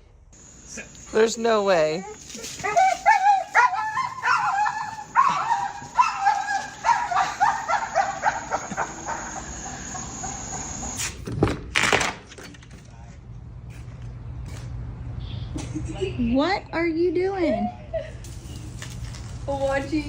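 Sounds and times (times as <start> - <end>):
dog whining yips: 2.0 - 11.0.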